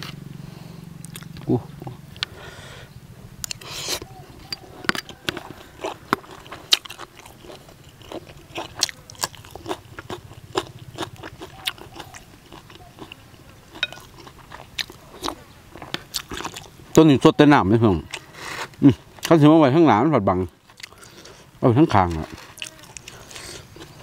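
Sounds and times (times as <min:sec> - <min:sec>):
chewing and crunching food: 0:01.0 - 0:02.4, 0:03.4 - 0:17.1, 0:17.8 - 0:19.5, 0:20.3 - 0:24.0
wet mouth sounds: 0:03.4 - 0:10.2.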